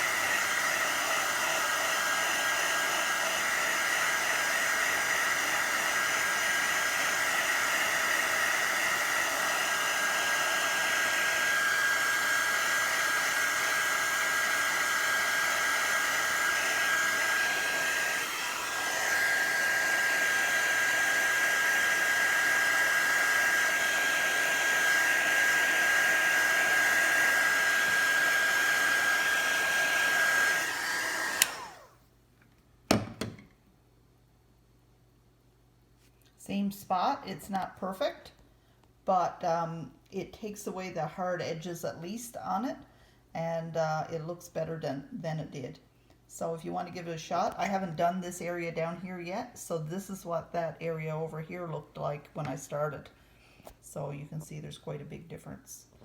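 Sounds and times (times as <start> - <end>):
heat gun fan whining: 0.0 - 32.0.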